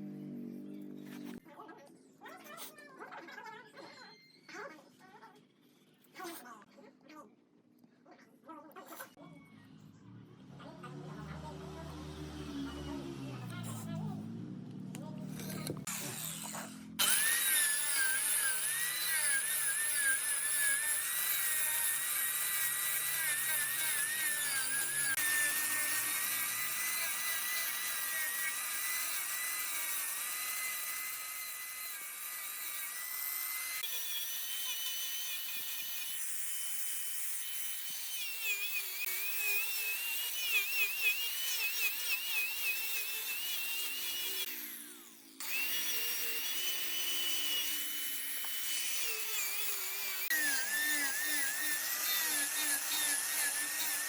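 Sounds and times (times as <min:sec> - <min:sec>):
wood lathe tool whining: 0:11.0 - 0:54.0.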